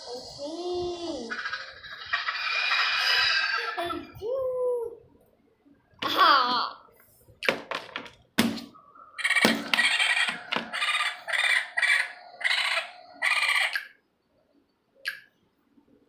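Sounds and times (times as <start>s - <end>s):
chicken calls: 1.2s - 3.9s, 8.8s - 14.0s
sharp clicks: 13.7s - 13.9s, 15.0s - 15.3s.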